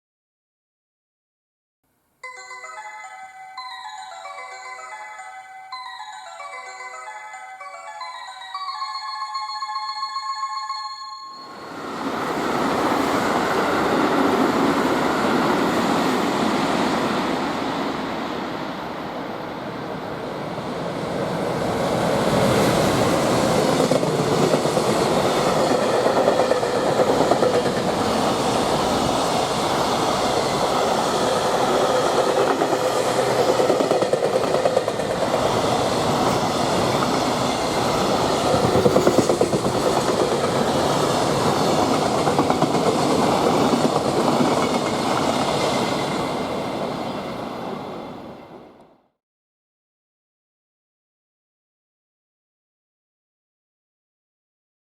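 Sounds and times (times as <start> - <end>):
freight train rumbling: 8.0 - 48.8.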